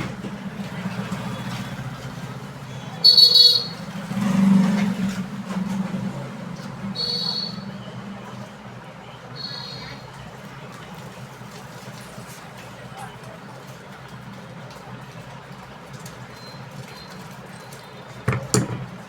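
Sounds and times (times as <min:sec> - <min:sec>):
low traffic rumble: 0:00.0 - 0:19.0
vehicle horn honks: 0:03.0 - 0:03.9, 0:07.0 - 0:07.6.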